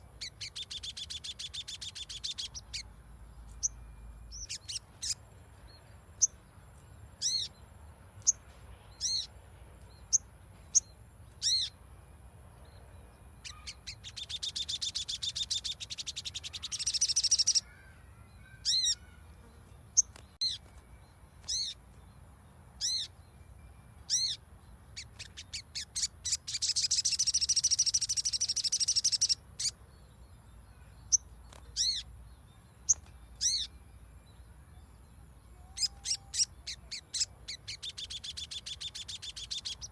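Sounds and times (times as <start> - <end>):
bird chattering trills: 0.0 - 2.9, 13.4 - 17.8, 18.4 - 19.2, 25.0 - 29.8, 31.1 - 32.2, 32.8 - 33.8, 35.5 - 39.9.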